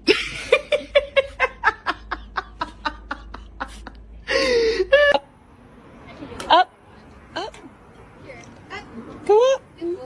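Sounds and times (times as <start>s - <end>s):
person laughing: 0.0s - 5.2s.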